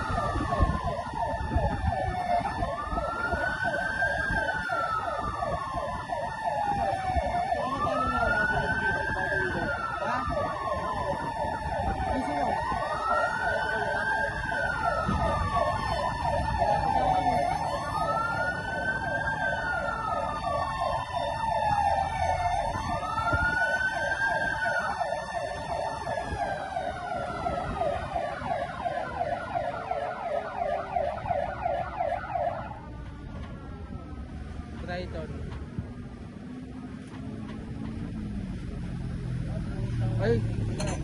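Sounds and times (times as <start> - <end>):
siren yelp: 0.0 - 40.5
engine rumble: 0.0 - 41.0
fire engine siren wail: 0.0 - 41.0.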